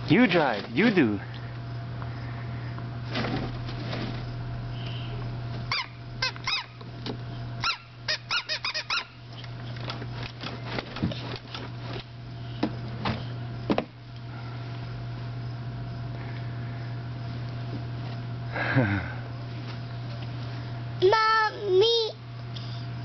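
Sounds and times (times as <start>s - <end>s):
toy truck squeaks: 5.7s - 6.7s, 7.6s - 9.2s.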